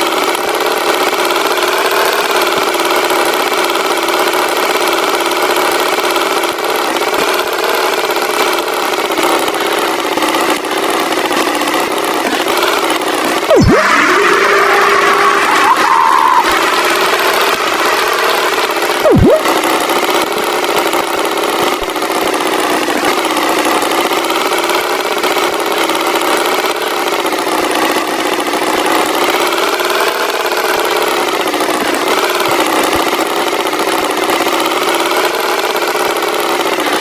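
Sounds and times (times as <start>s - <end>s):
cartoon tractor engine running: 0.0s - 37.0s
short swooping whistle: 13.5s - 16.5s, 19.0s - 19.5s.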